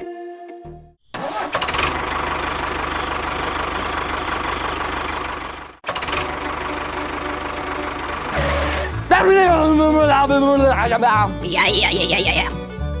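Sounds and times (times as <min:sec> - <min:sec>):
small engine pulsing: 0:01.1 - 0:09.1.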